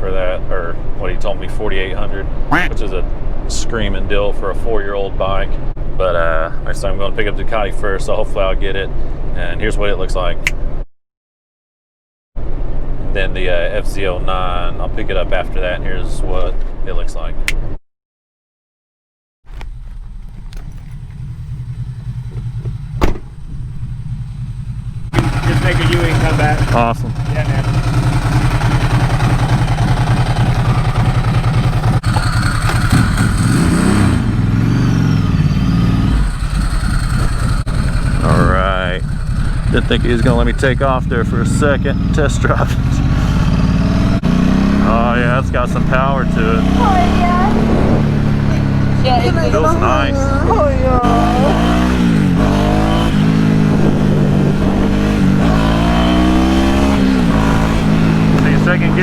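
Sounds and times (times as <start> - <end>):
motorcycle engine revving: 19.7 - 59.0.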